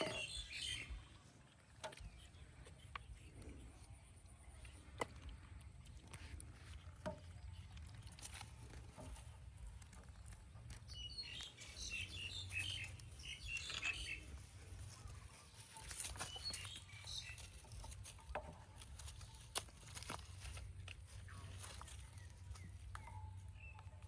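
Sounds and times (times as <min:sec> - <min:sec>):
high-pitched chirping calls: 0:10.9 - 0:17.9.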